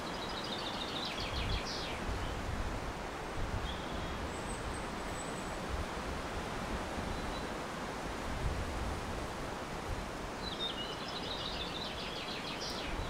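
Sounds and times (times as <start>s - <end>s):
small bird singing: 0.0s - 2.3s, 3.6s - 5.4s, 10.4s - 13.0s
outdoor background hiss: 0.0s - 13.0s.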